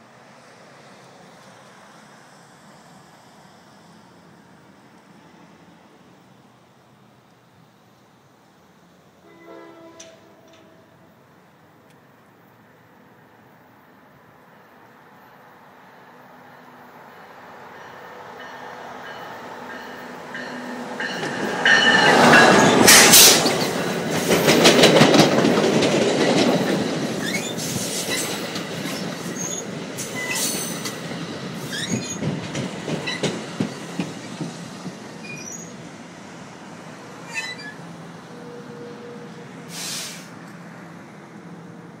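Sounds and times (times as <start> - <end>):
train passing rumble: 0.0 - 42.0
wheels clicking over rail joints: 21.1 - 35.8
high wheel squeals: 27.2 - 28.4, 29.3 - 30.8, 31.6 - 32.2, 35.2 - 35.8, 37.2 - 39.1.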